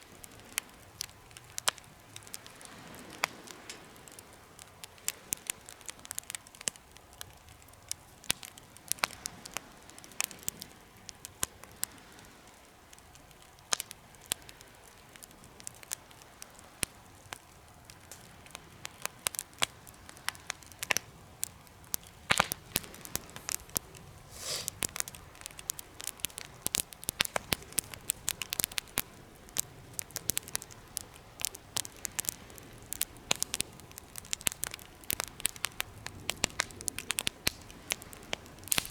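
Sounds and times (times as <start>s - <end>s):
wood fire crackling: 0.0s - 38.9s
brief hiss: 24.3s - 24.8s.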